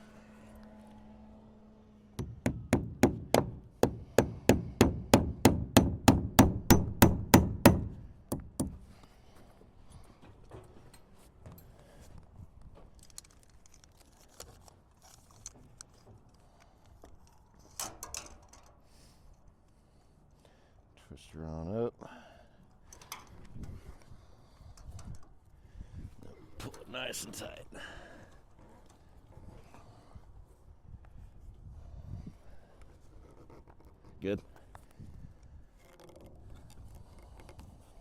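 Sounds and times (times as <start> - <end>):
hammer driving nails into wood: 2.2 - 8.9.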